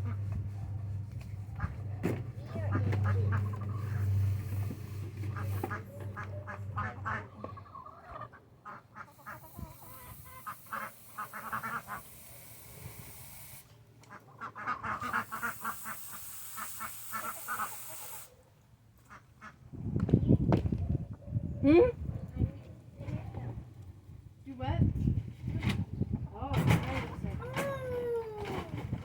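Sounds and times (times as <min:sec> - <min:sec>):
ducks quacking: 0:00.0 - 0:00.3, 0:01.5 - 0:01.9, 0:02.5 - 0:12.3, 0:14.0 - 0:18.3, 0:19.0 - 0:19.6.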